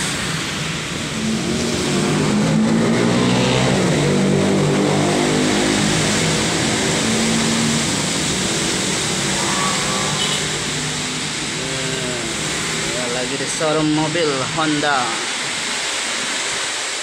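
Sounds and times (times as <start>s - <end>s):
vehicle engine droning: 0.0s - 13.4s
heavy rain hissing: 0.0s - 17.0s.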